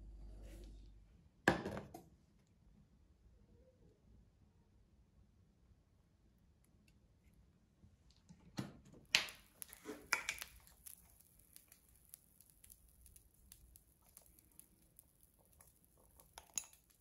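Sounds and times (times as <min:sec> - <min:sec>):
small objects clicking and tapping: 0:09.0 - 0:17.0.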